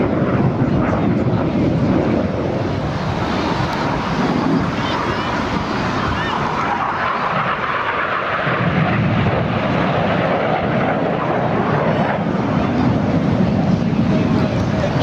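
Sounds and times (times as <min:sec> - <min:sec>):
jets flying past: 0:00.0 - 0:15.0.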